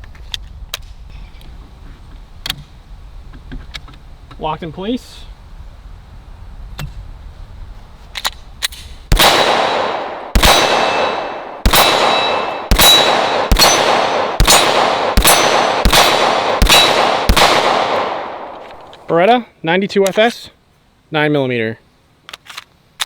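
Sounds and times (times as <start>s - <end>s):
pistol shots: 9.1s - 18.9s
steel targets ringing: 10.4s - 17.2s.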